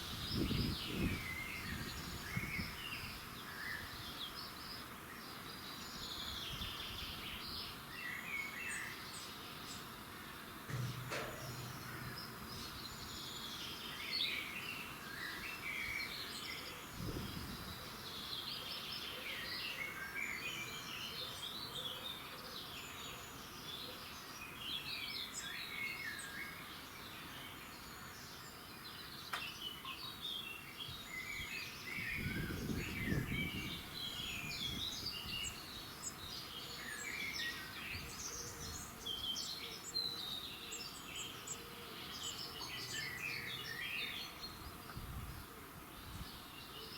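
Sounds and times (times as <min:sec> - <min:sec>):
songbirds chirping and trilling: 0:00.0 - 0:46.9.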